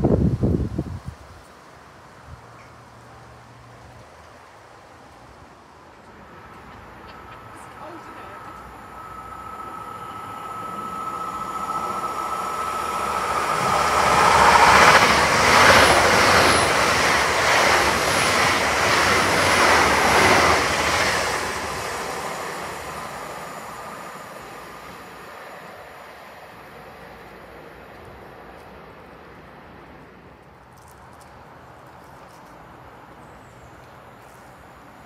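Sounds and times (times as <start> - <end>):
train passing at speed: 0.0 - 35.0
thin steady tone: 6.9 - 15.1.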